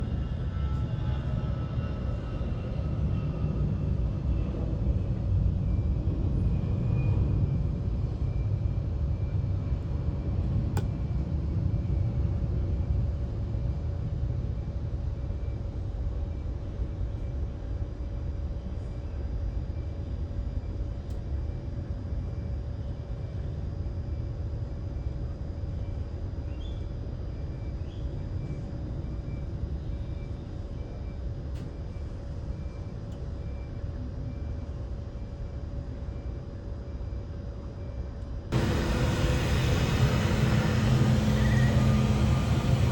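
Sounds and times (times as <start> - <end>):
faint steady whine: 0.0 - 42.9
jet engines rumbling: 38.5 - 42.9.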